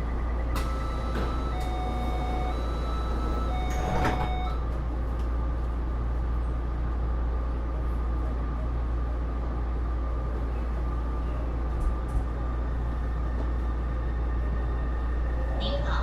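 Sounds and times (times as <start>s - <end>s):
subway car low hum: 0.0s - 16.0s
electronic door warning tones: 0.4s - 4.6s
sliding doors shutting: 0.6s - 4.6s.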